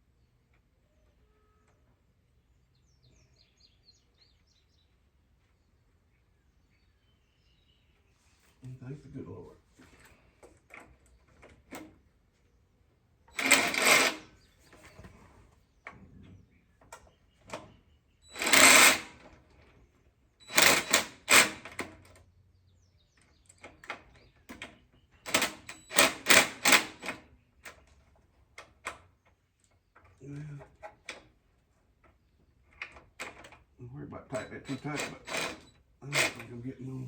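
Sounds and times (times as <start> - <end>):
ratchet wrench clicking: 13.4 - 14.2, 18.3 - 19.2, 20.5 - 21.7.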